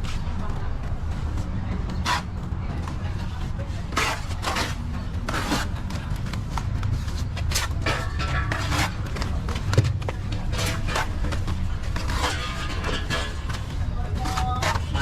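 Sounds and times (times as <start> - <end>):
trowel scraping mortar: 2.0 - 2.3, 4.0 - 5.8, 7.5 - 9.3, 10.5 - 15.0.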